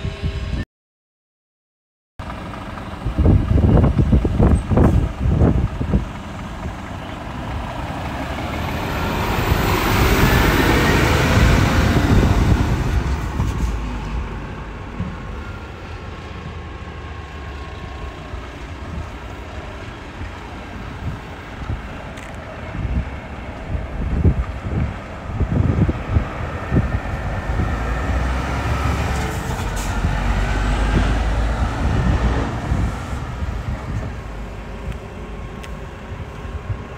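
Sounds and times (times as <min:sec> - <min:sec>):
vehicle rumble: 0:02.2 - 0:36.9
wind buffeting microphone: 0:02.3 - 0:36.9
vehicle passing by: 0:06.4 - 0:19.1, 0:24.0 - 0:36.8.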